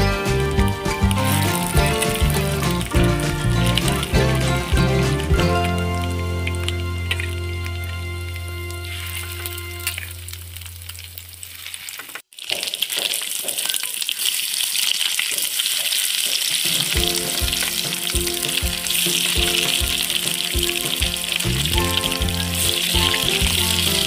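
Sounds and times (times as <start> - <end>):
background music: 0.0 - 10.4, 16.8 - 24.0
fish sizzling in hot oil: 8.7 - 24.0.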